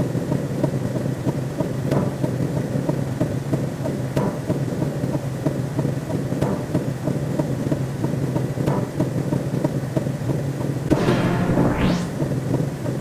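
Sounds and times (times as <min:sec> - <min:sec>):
sudden synthetic hit: 0:10.9 - 0:12.7.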